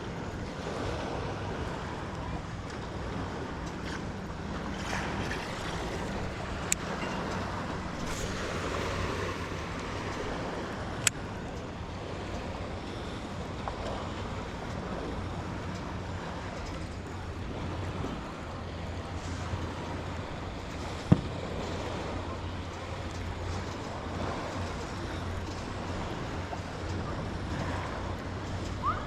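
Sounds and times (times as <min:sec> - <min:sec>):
boat engine drone: 0:00.0 - 0:29.0
lake water washing: 0:00.0 - 0:29.0
wind: 0:00.0 - 0:29.0.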